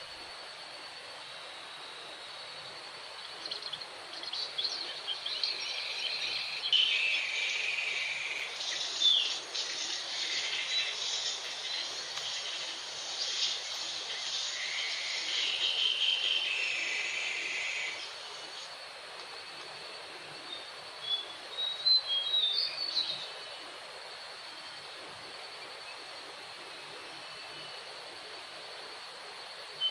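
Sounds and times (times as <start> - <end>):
insect buzz: 0.0 - 29.9
recorded bird chirps: 3.2 - 18.7, 20.5 - 23.4.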